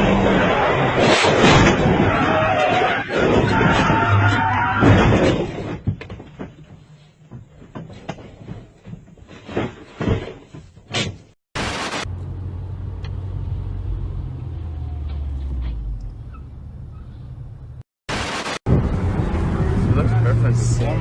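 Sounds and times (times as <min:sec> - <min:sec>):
vehicle running low rumble: 0:12.1 - 0:17.8, 0:18.7 - 0:21.0.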